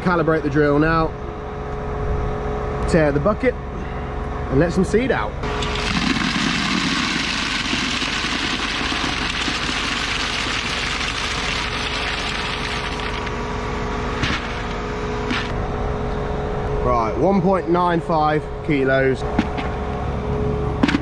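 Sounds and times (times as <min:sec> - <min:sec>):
seed pouring into bucket: 0:05.6 - 0:13.3.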